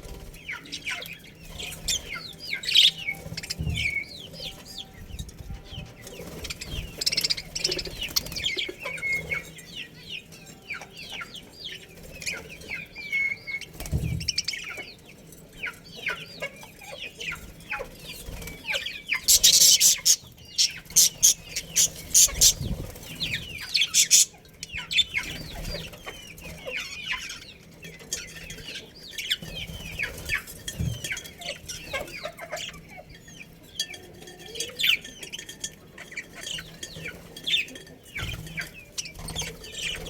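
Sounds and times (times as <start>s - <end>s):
budgerigars chattering: 0.3s - 5.0s, 5.7s - 15.0s, 15.6s - 40.0s.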